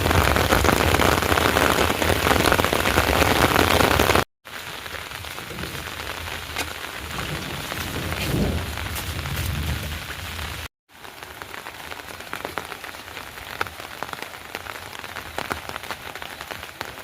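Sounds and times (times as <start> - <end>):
heavy rain hissing: 0.0 - 17.0
raindrops ticking: 0.0 - 17.0.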